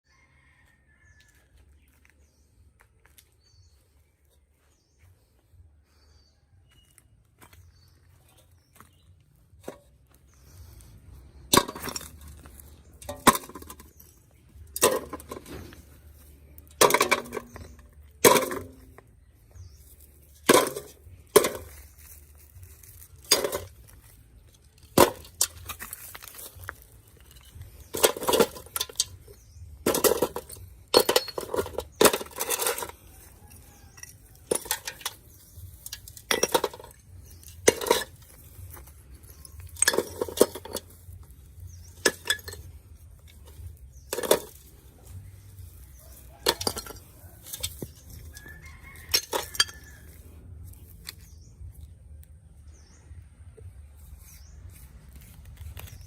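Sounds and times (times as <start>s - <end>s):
hard objects knocking and clinking: 11.3s - 15.9s, 16.6s - 19.1s, 23.0s - 50.2s.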